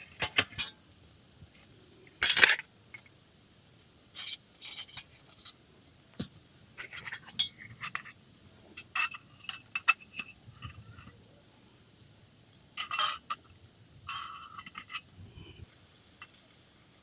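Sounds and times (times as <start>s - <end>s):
cookware scraping rattles: 2.2s - 2.6s, 6.8s - 8.2s, 8.8s - 11.1s, 12.8s - 13.4s, 14.1s - 15.0s
metal cookware clinking: 2.2s - 2.6s, 6.8s - 8.1s, 12.8s - 13.4s, 14.1s - 15.0s.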